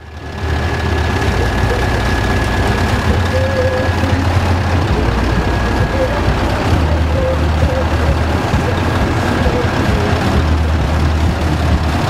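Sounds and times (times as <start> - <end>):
thin steady whine: 0.0 - 12.0
truck diesel engine running: 0.0 - 12.0.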